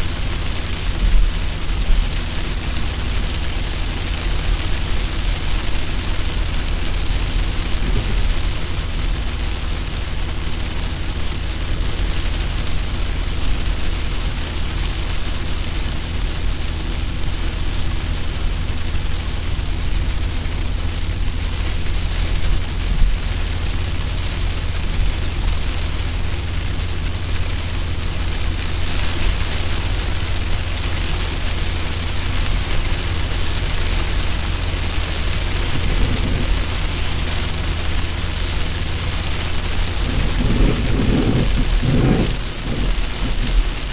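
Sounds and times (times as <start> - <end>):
rain hissing on windshield: 0.0 - 43.9
engine and tyre drone: 7.4 - 9.3, 27.3 - 43.9.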